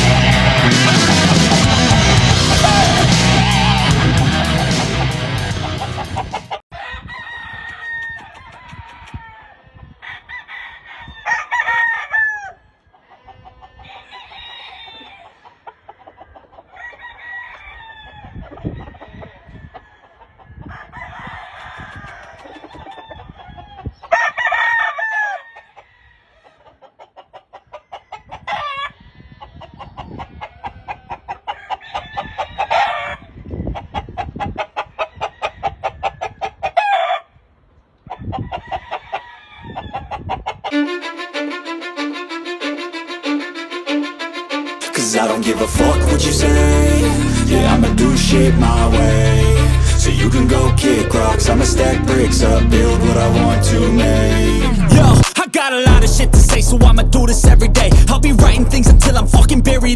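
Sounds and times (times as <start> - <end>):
roosters crowing: 0.0 - 15.5, 16.1 - 26.6
chickens clucking: 0.2 - 6.6, 15.0 - 16.9, 21.7 - 24.1, 26.5 - 37.0, 39.6 - 54.3.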